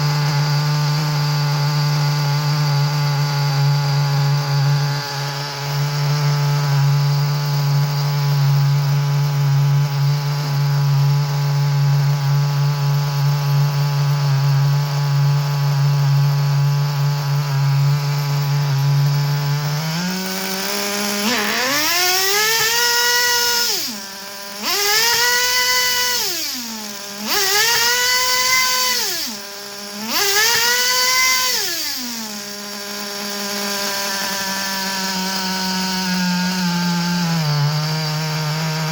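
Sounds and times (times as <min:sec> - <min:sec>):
nitro engine running and revving: 0:00.0 - 0:38.9.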